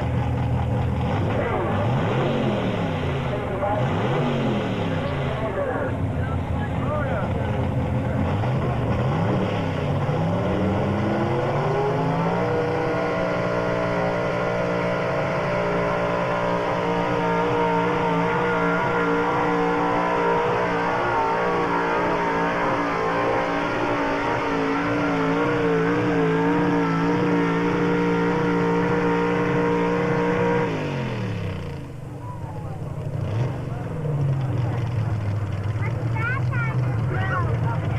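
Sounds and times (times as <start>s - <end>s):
truck engine revving under load: 0.0s - 37.9s.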